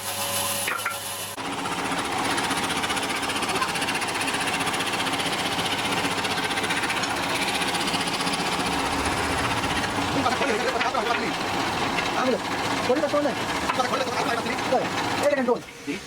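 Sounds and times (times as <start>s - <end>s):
sawmill machinery rattling: 0.0s - 16.0s.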